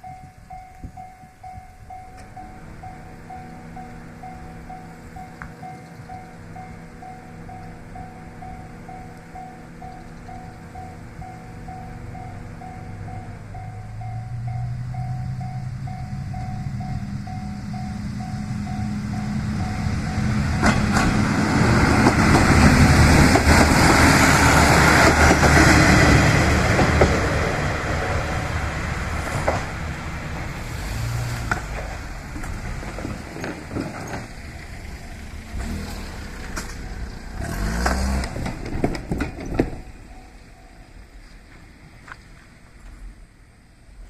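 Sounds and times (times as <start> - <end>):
diesel railcar passing: 0.0 - 44.0
wheels clicking over rail joints: 15.4 - 43.4.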